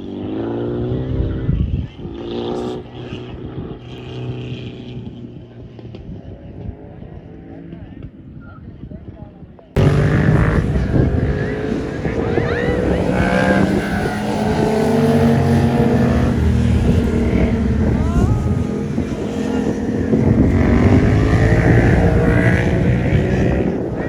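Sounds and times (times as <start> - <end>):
car engine running loudly: 9.8 - 24.0.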